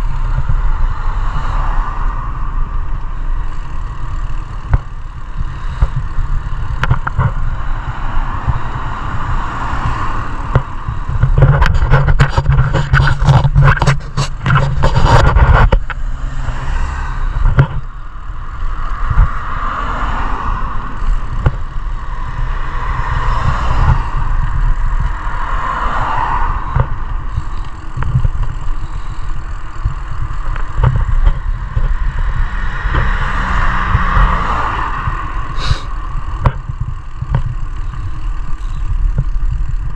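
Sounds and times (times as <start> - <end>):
bike road noise: 0.0 - 39.9
clattering and scraping: 10.5 - 16.0.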